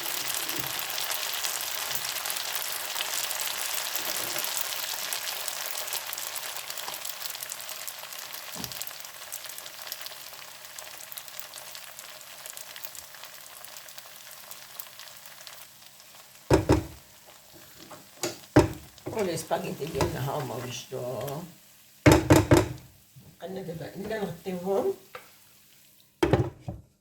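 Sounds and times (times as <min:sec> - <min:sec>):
food sizzling in a pan: 0:00.0 - 0:26.5
loud knocks: 0:16.5 - 0:17.0, 0:18.2 - 0:19.2, 0:22.1 - 0:22.9, 0:26.2 - 0:26.9.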